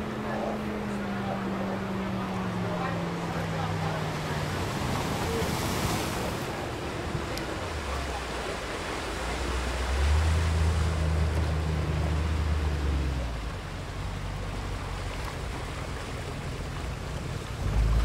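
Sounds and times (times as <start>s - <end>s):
ocean waves surf hiss: 4.0s - 14.1s.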